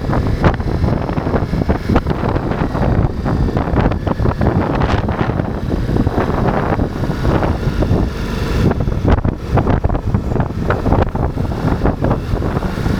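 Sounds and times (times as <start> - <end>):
motorcycle engine running: 0.0 - 12.9
wind buffeting on microphone: 0.0 - 12.9.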